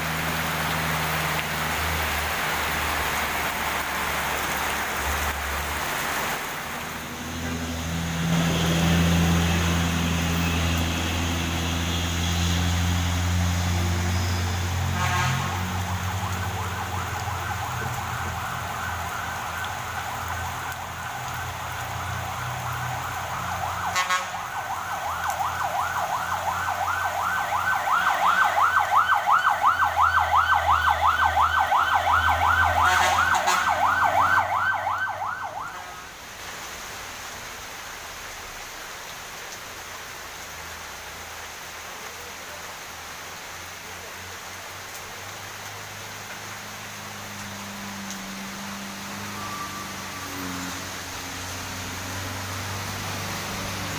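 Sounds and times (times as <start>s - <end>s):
siren with fast warble: 15.4s - 36.1s, 47.7s - 52.4s.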